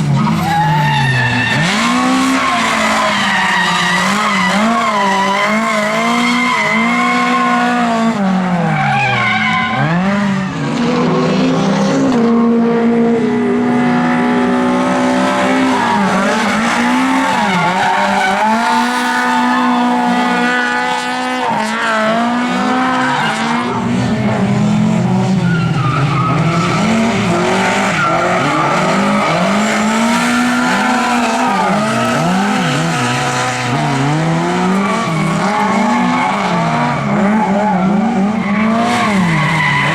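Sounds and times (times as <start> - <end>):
race car engines revving: 0.0 - 39.9
tyres squealing: 0.2 - 7.8, 22.6 - 33.8, 34.9 - 39.9.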